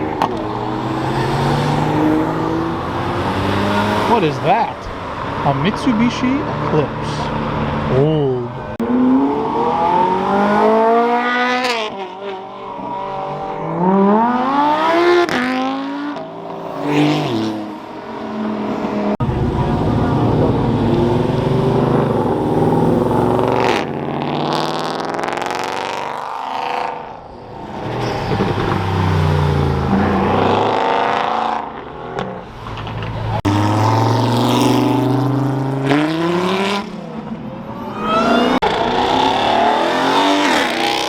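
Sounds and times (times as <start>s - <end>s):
car engines accelerating hard: 0.0s - 41.0s
rough car exhaust revving: 19.2s - 41.0s.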